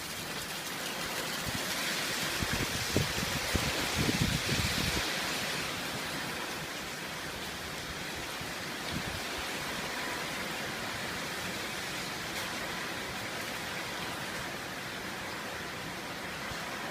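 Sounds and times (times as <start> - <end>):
heavy rain and wind: 0.0 - 16.9.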